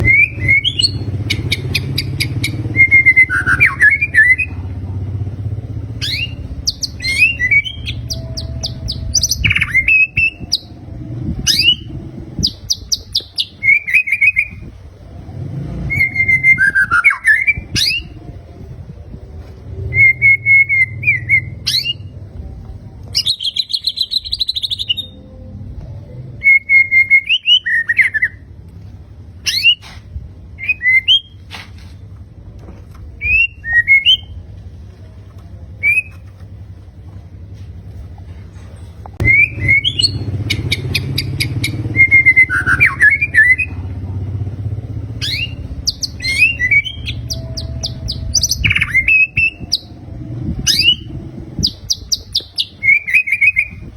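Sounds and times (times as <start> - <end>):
bird singing whistles and trills: 0.0 - 4.6, 5.9 - 14.8, 15.8 - 18.4, 19.6 - 22.2, 23.1 - 25.4, 26.0 - 28.5, 29.4 - 29.9, 30.6 - 31.5, 33.2 - 34.4, 35.8 - 36.2, 39.2 - 43.9, 44.5 - 53.9
low background hum: 0.0 - 53.9.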